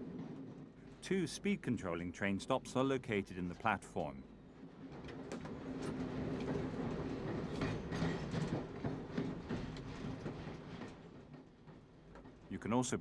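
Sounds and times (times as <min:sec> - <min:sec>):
train low hum: 0:00.0 - 0:13.0.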